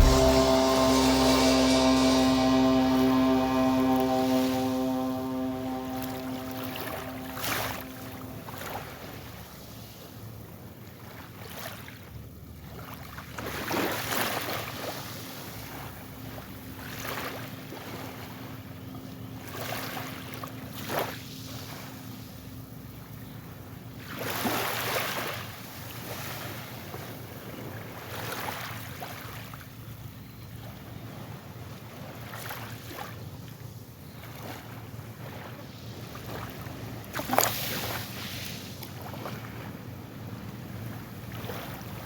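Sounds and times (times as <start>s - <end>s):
faint low hum: 0.0s - 9.5s
ocean waves washing in: 0.0s - 9.8s.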